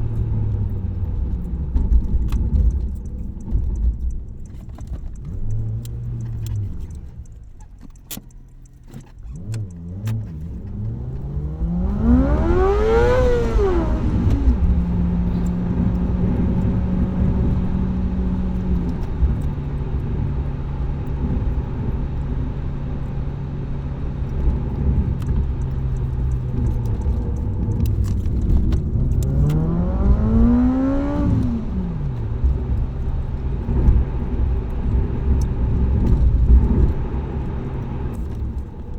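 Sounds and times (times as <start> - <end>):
car engine revving: 8.6 - 38.9.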